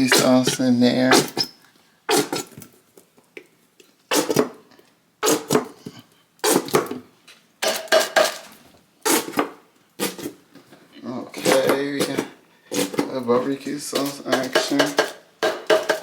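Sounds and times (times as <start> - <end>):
sauce bottle knocking and spluttering: 14.0 - 16.0.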